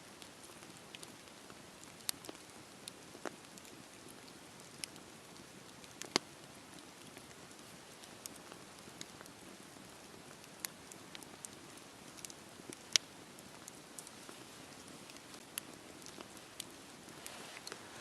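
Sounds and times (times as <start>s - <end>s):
wood crackling and popping: 0.1s - 18.0s
hiss of flames: 17.0s - 18.0s.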